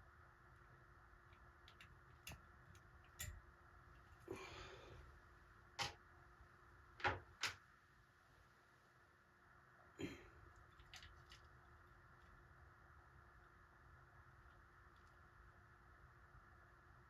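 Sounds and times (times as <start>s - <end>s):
faint steady hum: 0.0s - 17.0s
small tools clicking and knocking: 1.4s - 3.4s.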